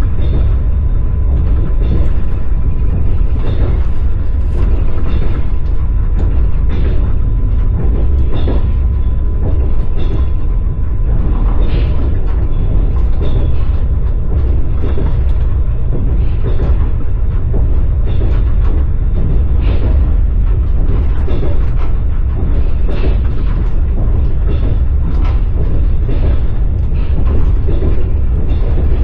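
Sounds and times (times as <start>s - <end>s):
train carriage rumble: 0.0s - 29.0s
wheels clacking over rails: 0.0s - 29.0s.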